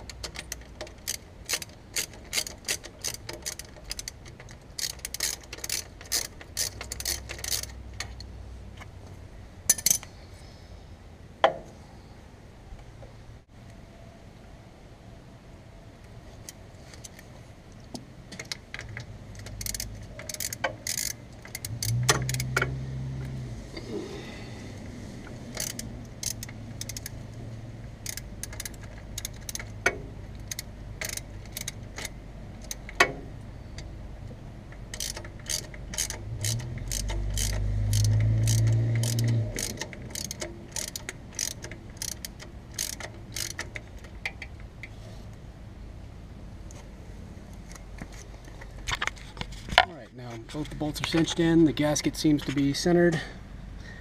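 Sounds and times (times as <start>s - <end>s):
ratchet wrench clicking: 0.0s - 8.2s, 9.7s - 10.1s, 18.4s - 22.8s, 25.5s - 27.2s, 28.0s - 33.1s, 34.8s - 44.9s.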